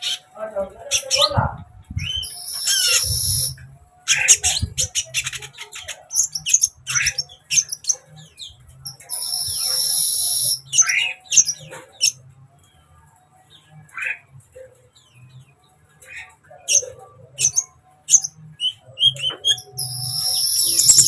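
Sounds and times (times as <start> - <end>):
bird chirps and twitters: 0.9 - 12.2, 16.0 - 21.0
loud buzzy bird trill: 2.0 - 5.0, 8.9 - 11.7, 16.8 - 21.0.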